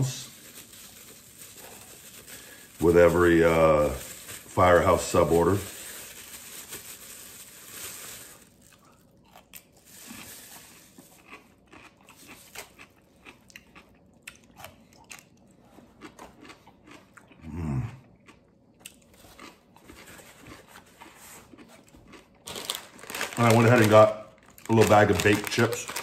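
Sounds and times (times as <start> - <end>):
plastic wrapper rustling: 0.0 - 11.4, 19.9 - 26.0
crisp crunching of pickle: 0.0 - 26.0.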